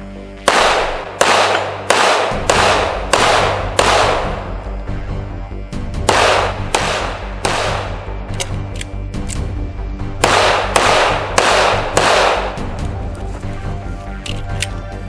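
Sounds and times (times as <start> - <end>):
gunshots with echoing tails: 0.4 - 4.6, 6.0 - 8.3, 10.2 - 12.8.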